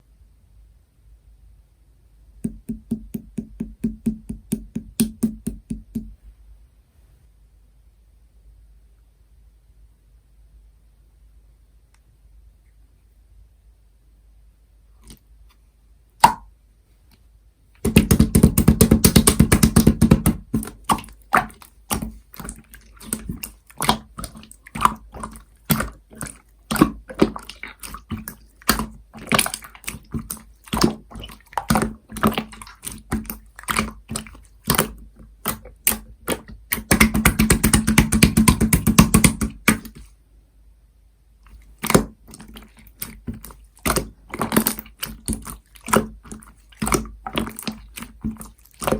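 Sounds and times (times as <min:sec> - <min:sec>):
slime wet clicks and pops: 0:16.2 - 0:16.5
slime squishing and crackling: 0:17.8 - 0:40.0, 0:41.6 - 0:48.9.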